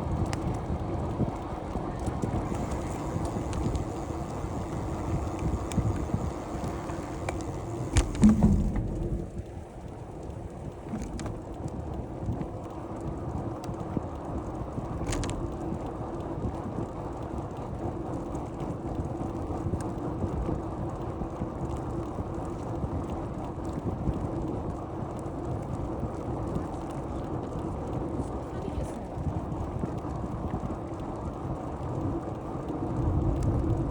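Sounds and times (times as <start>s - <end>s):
light clicks and rattles: 0.0s - 12.8s, 14.9s - 16.0s
wind on microphone: 0.0s - 16.8s
bicycle tyre and road noise: 0.0s - 33.9s.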